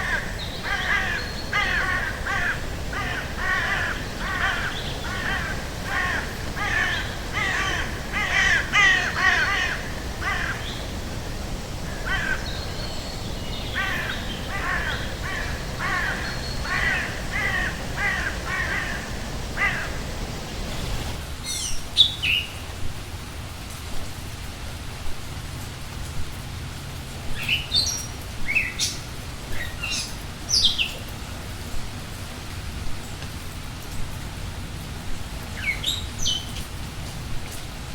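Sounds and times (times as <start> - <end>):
bird calling repeatedly: 0.0 - 21.2
steady low background noise: 0.0 - 37.9.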